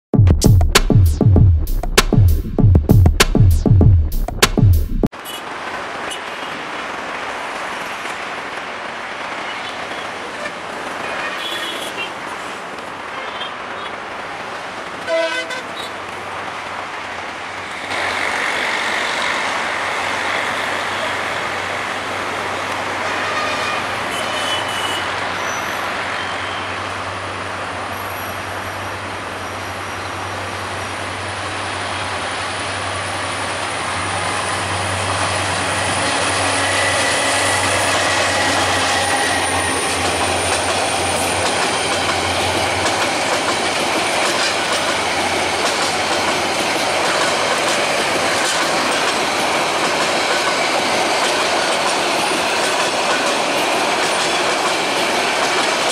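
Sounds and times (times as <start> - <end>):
train coaches rolling past: 5.2 - 55.9
diesel locomotive passing: 5.5 - 55.9
train horn toot: 10.4 - 12.1, 15.1 - 15.9, 23.0 - 26.8, 35.6 - 40.0.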